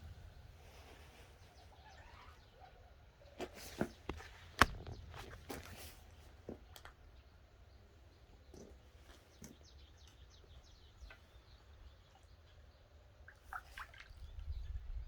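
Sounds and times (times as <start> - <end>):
birds chirping: 0.0 - 13.1
wind on microphone: 14.1 - 15.0.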